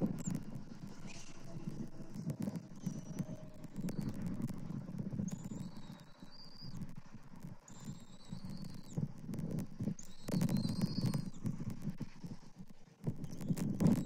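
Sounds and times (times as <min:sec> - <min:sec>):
bird whistled calls: 0:10.0 - 0:11.4.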